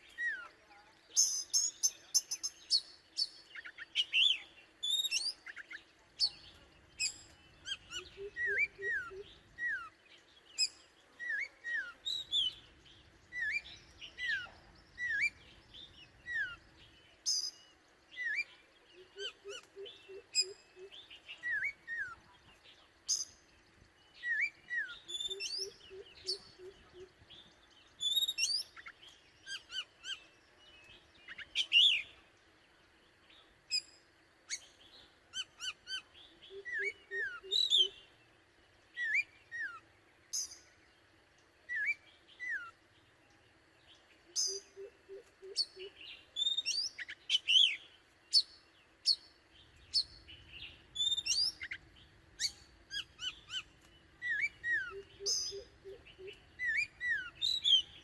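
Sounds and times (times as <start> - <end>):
bird whistles and chirps: 1.2 - 9.9, 24.2 - 27.1, 28.0 - 30.2, 34.5 - 38.0, 41.7 - 42.8, 44.3 - 48.5, 49.8 - 51.8, 52.4 - 58.0.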